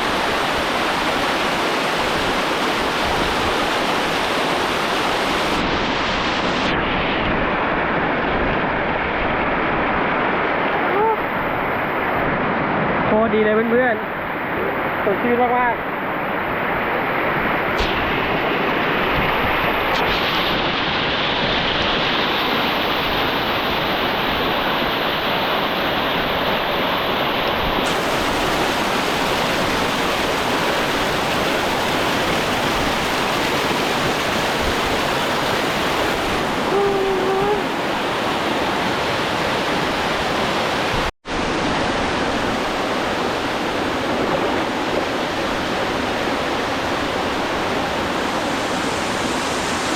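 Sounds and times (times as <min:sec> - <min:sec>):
waterfall roaring: 0:00.0 - 0:06.7, 0:17.6 - 0:49.9.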